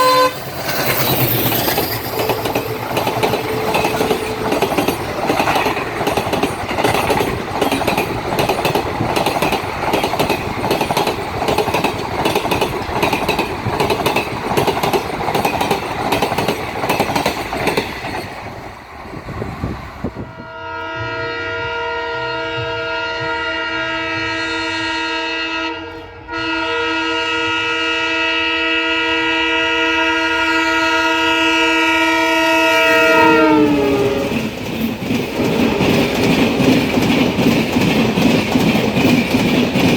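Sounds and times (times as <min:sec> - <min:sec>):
locomotive air horn: 0:00.0 - 0:00.5, 0:20.2 - 0:34.4
train wheels clattering: 0:00.0 - 0:20.2, 0:33.4 - 0:39.9.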